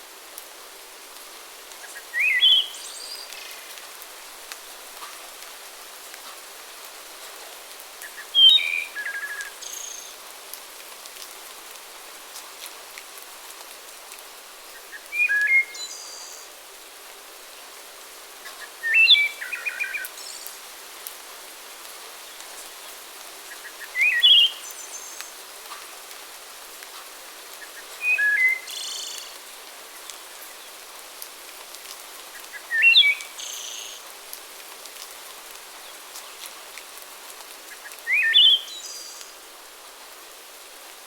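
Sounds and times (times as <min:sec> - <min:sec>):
background hiss: 0:00.0 - 0:41.0
songbird singing trills: 0:32.6 - 0:34.0, 0:38.1 - 0:39.3.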